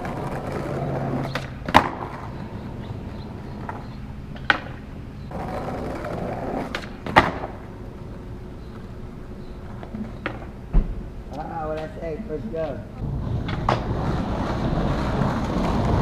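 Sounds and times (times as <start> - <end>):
skateboard clacking on ground: 0.0 - 9.0, 9.6 - 10.6, 13.2 - 16.0
skateboard wheels rolling on pavement: 0.0 - 16.0.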